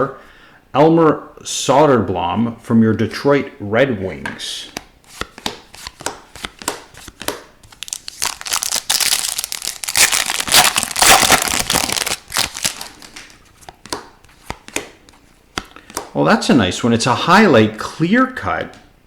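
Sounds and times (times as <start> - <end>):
cards clicking and rustling: 4.2 - 16.2
card pack wrapper crinkling and tearing: 5.8 - 13.3.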